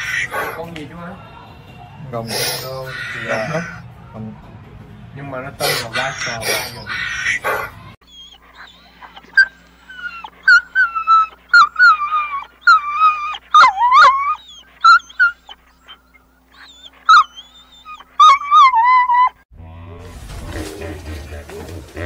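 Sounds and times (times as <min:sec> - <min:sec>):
young dog whining: 0:05.6 - 0:19.4.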